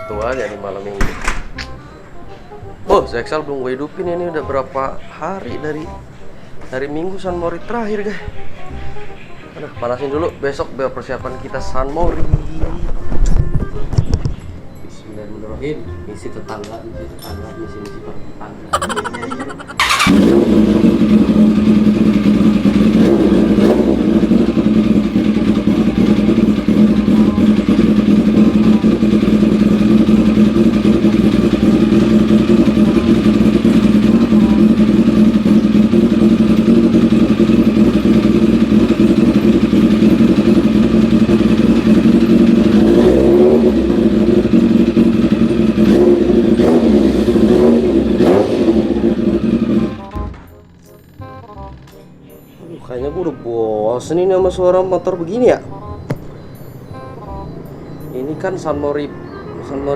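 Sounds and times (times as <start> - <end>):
motorcycle engine idling: 19.8 - 50.3.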